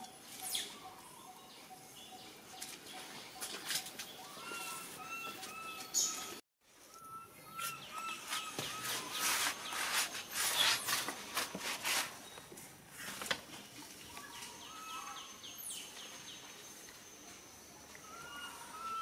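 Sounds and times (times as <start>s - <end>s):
bird low calls: 4.1s - 11.0s, 18.0s - 19.0s.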